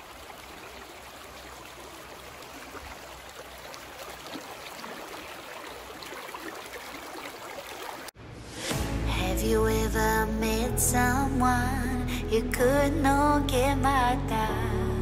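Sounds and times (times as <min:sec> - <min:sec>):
creek water running: 0:00.0 - 0:08.2.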